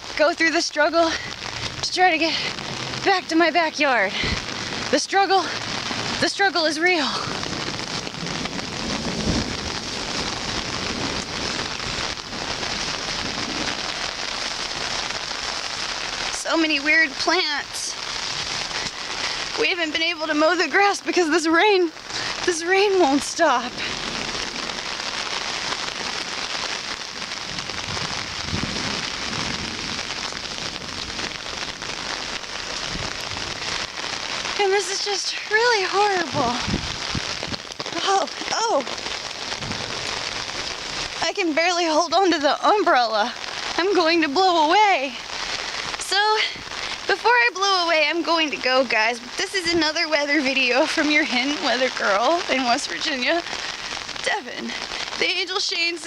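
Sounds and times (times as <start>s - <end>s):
rain pattering on umbrella: 0.0s - 56.0s
low rumble: 4.1s - 16.3s, 23.3s - 34.6s, 36.2s - 41.2s.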